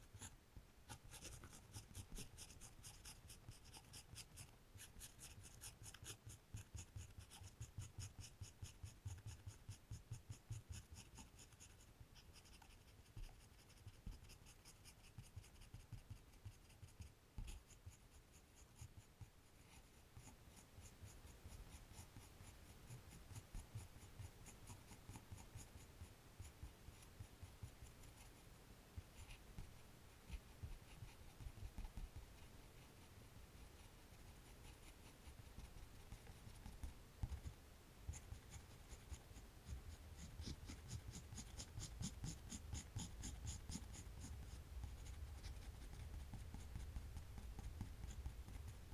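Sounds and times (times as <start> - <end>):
drawing tool scratching paper: 0.1 - 25.8, 38.1 - 48.8.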